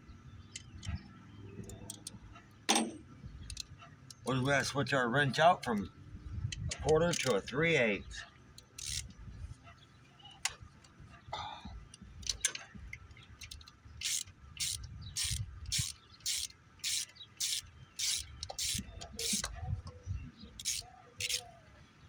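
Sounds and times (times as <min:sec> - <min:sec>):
socket ratchet clicking: 0:01.6 - 0:02.9, 0:03.5 - 0:04.2, 0:06.6 - 0:07.6, 0:08.6 - 0:09.2, 0:11.9 - 0:19.6, 0:20.6 - 0:21.5.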